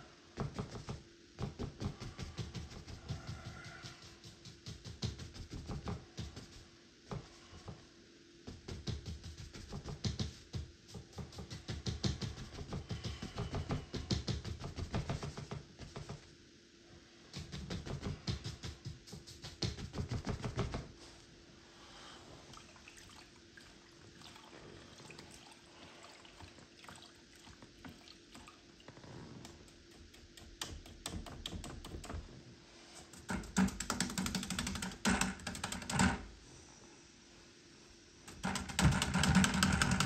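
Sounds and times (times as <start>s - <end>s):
paintbrush scrubbing canvas: 0.6s - 7.8s, 8.5s - 16.3s, 17.2s - 21.2s.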